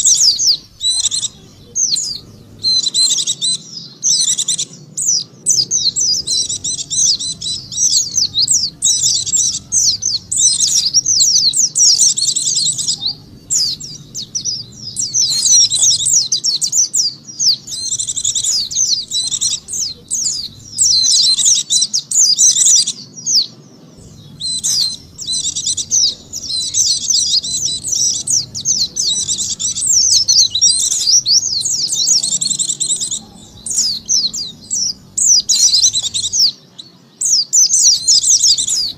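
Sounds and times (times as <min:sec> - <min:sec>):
high twittering bird warble: 0:00.0 - 0:38.9.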